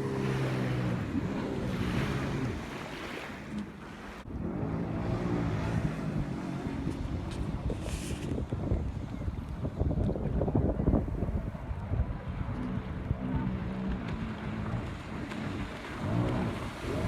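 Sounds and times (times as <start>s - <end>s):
jet ski engine running: 0.0s - 17.0s
wind buffeting microphone: 0.0s - 17.0s.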